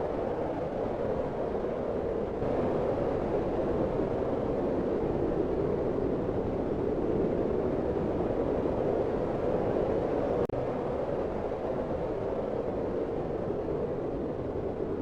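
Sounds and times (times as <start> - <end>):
rushing wind: 0.0 - 15.0.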